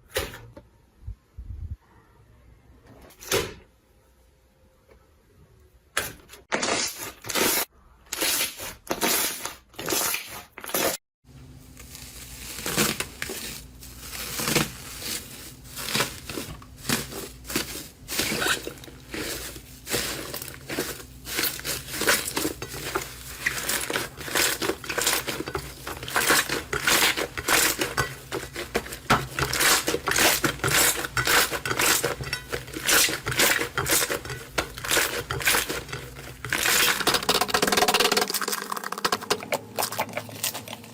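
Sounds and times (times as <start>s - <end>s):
sticky slime crackling: 11.8s - 40.9s.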